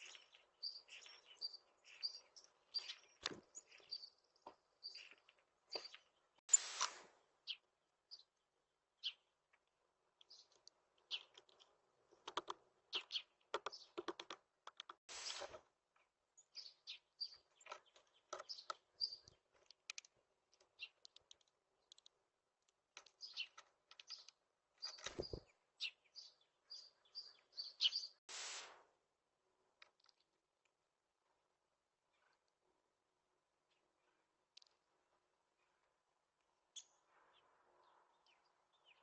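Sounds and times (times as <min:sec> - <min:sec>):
small birds chirping: 0:00.0 - 0:28.3, 0:31.4 - 0:39.0
clicks and taps: 0:10.5 - 0:15.0.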